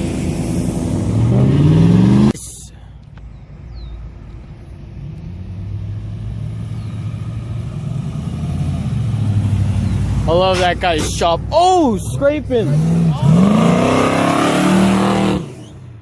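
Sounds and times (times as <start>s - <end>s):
car engine revving: 0.0s - 2.4s, 5.0s - 16.0s
approaching car engine: 4.1s - 16.0s.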